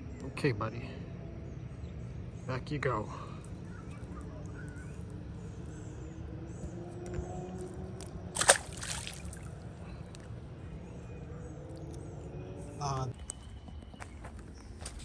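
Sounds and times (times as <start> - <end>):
fish splashing into water: 8.0 - 9.6.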